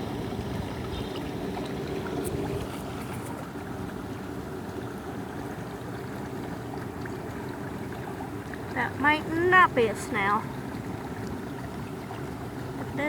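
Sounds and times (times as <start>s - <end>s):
waterfall rushing into pond: 8.7s - 10.5s.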